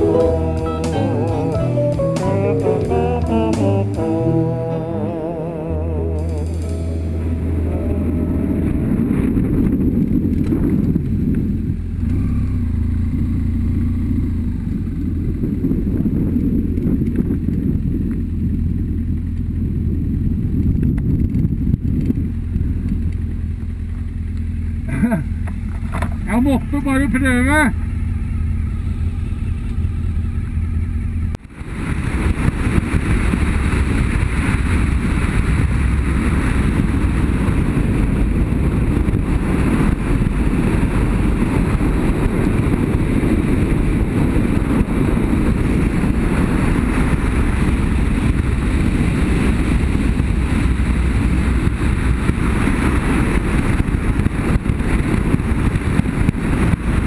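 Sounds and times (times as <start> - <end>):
wind on microphone: 0.0 - 12.2, 31.5 - 57.0.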